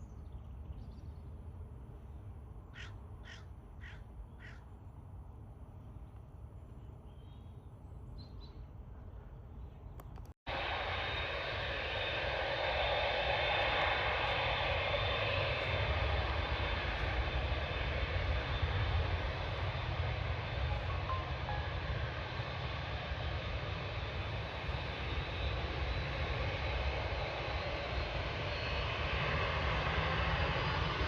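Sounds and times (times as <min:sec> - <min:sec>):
jet engine roar: 0:10.5 - 0:31.0.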